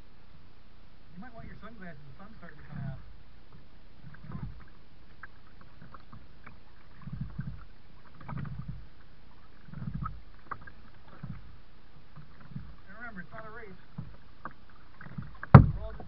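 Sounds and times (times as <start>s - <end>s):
kayak paddle strokes: 1.2s - 16.0s
water drips and splashes: 4.0s - 16.0s.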